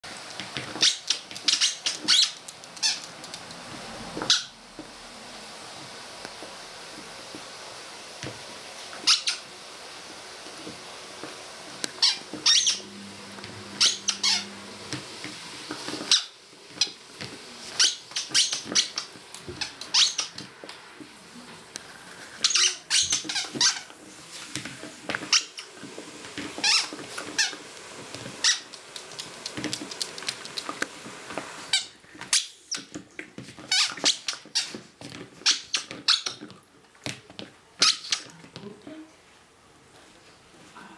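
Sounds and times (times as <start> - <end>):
squeaky dog toy squeaking: 0.8 - 3.1, 4.2 - 4.6, 9.0 - 9.4, 12.0 - 12.8, 13.8 - 14.5, 17.8 - 20.3, 22.4 - 23.9, 37.8 - 38.3.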